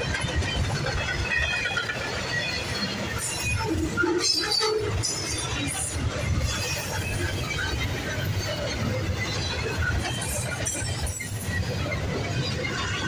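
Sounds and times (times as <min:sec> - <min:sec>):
steel wheels rumbling on rail: 0:00.0 - 0:13.0.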